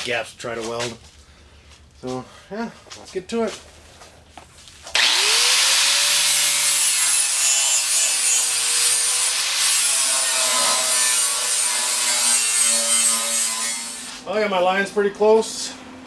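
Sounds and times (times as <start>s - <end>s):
angle grinder grinding steel: 4.9s - 14.3s.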